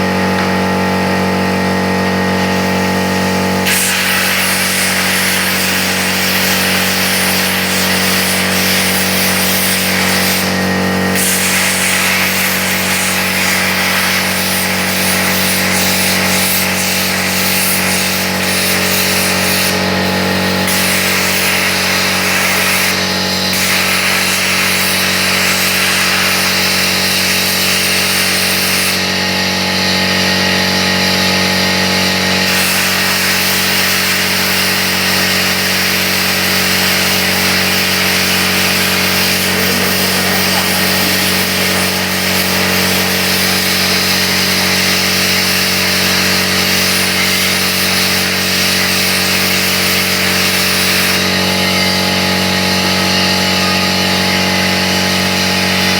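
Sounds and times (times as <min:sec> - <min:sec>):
plasma cutter hissing: 0:02.3 - 0:55.9
electrical hum: 0:31.1 - 0:48.8.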